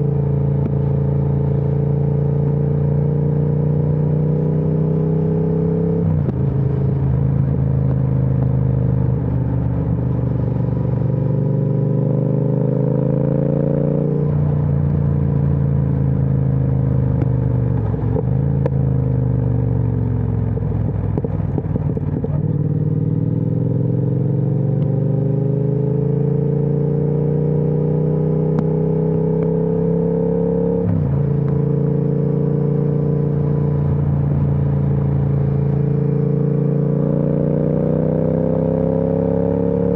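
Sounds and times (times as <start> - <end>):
motorcycle engine revving through gears: 0.0 - 39.9
exhaust crackling on overrun: 6.0 - 11.5, 14.2 - 23.4.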